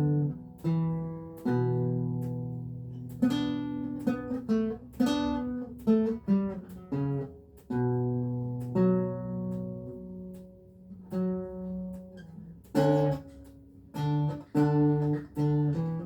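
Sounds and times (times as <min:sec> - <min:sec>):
solo lute playing: 0:00.0 - 0:16.0.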